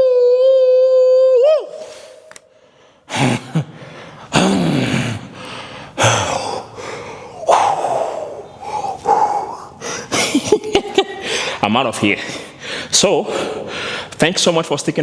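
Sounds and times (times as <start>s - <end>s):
man gasping for breath: 2.5s - 10.2s, 11.2s - 11.6s, 12.2s - 14.2s.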